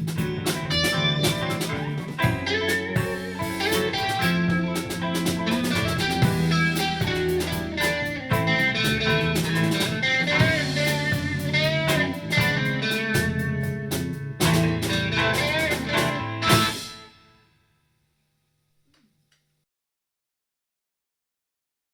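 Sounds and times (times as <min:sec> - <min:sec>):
drum kit: 0:00.0 - 0:17.3
electric guitar with bent notes: 0:00.0 - 0:17.3.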